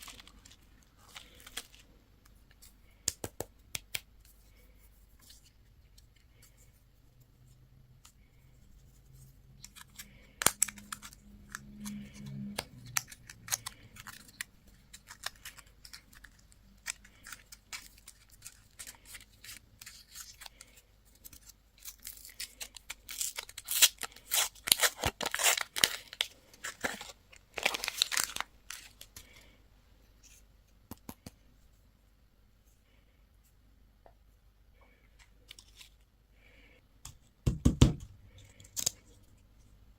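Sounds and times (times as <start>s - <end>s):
candy wrappers tearing and crinkling: 0.0s - 1.9s, 9.6s - 29.5s.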